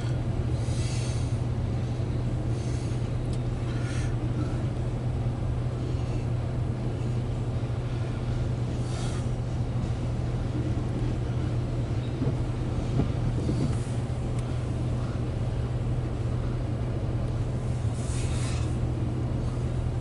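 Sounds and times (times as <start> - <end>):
muffled train rumble: 0.0 - 20.0.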